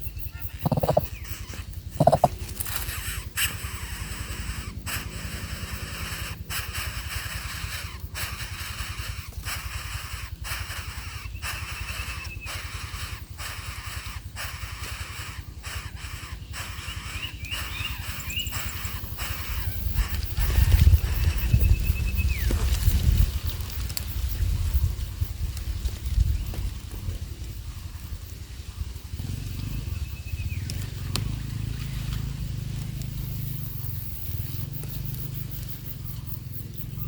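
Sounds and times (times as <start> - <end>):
bird calls: 0.0 - 22.8, 27.5 - 37.0.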